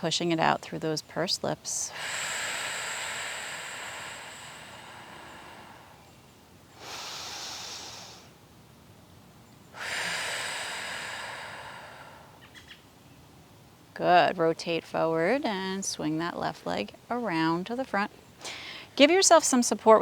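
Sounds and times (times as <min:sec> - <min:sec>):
woman breathing: 0:01.7 - 0:08.4, 0:09.7 - 0:12.6, 0:18.4 - 0:19.0.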